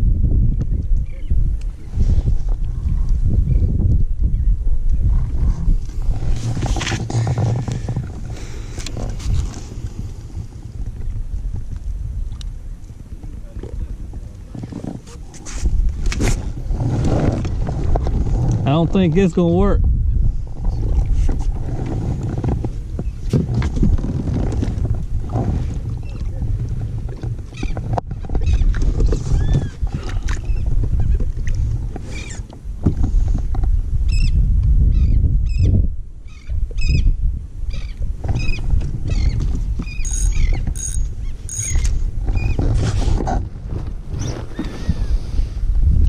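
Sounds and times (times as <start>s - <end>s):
wind and water rumble: 0.0s - 46.0s
high-pitched bird calls: 39.2s - 42.6s.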